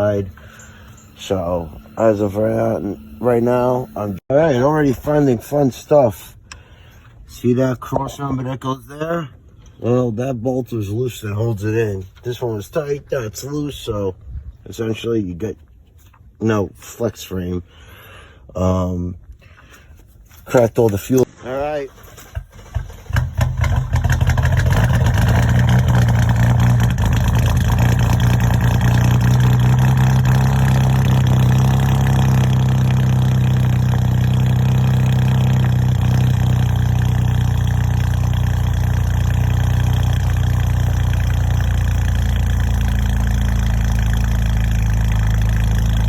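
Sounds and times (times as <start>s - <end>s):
car engine idling: 0.0s - 5.6s, 22.2s - 46.0s
car engine cranking and starting: 21.9s - 46.0s.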